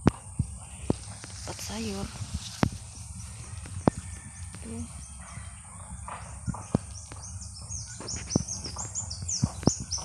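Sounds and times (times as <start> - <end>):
birds chirping: 0.0 - 10.0
steady high hiss: 0.1 - 10.0.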